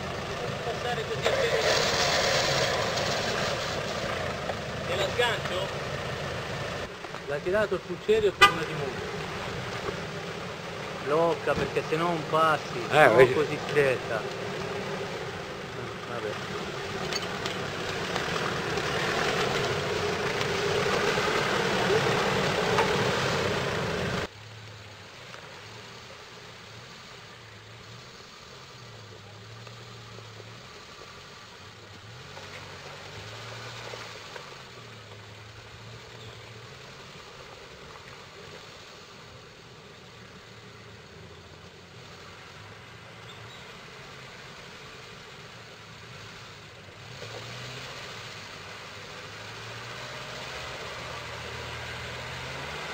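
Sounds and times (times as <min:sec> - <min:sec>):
diesel engine rushing noise: 0:00.0 - 0:24.3
low engine hum: 0:00.0 - 0:52.9.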